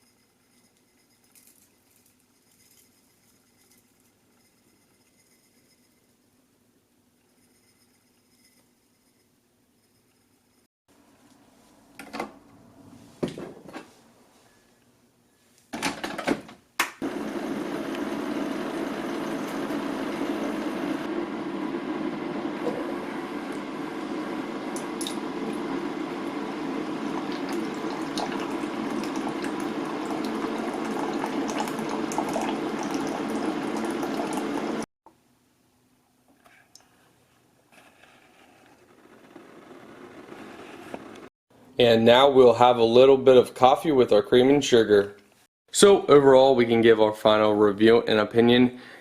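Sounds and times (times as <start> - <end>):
coffee pouring into a mug: 23.6 - 34.8.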